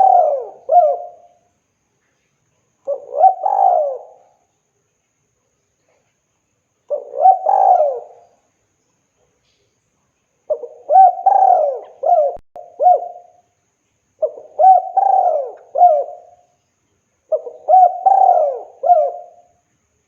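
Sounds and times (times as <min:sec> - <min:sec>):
dove cooing: 0:00.0 - 0:01.4, 0:02.9 - 0:04.4, 0:06.9 - 0:08.3, 0:10.5 - 0:13.4, 0:14.2 - 0:16.5, 0:17.3 - 0:19.5.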